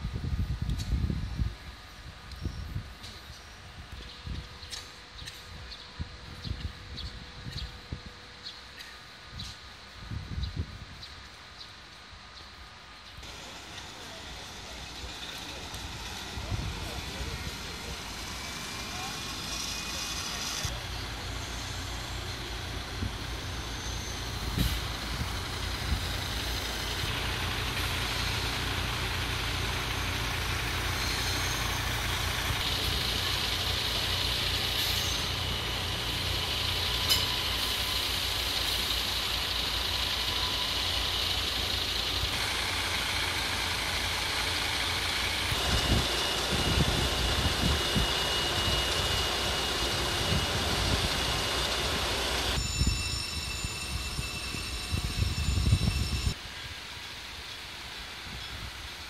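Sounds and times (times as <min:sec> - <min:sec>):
steady high whine: 0:00.0 - 0:59.0
train equipment hum and hiss: 0:00.0 - 0:59.0
low rumbles: 0:13.2 - 0:52.6.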